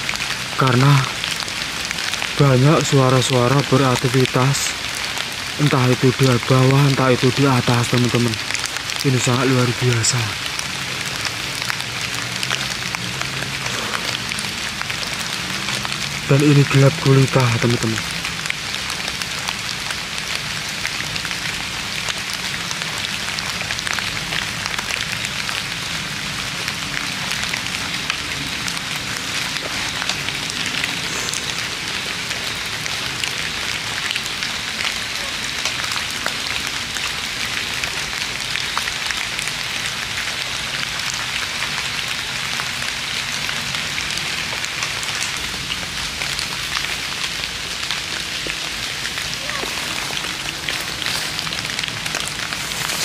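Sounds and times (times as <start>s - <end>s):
drizzle falling: 43.8s - 53.0s.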